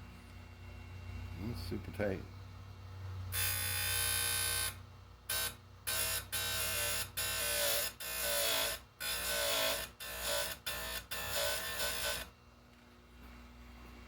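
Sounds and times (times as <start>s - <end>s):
grinder motor humming: 3.3s - 12.3s
grinding wheel grinding metal: 3.4s - 12.3s.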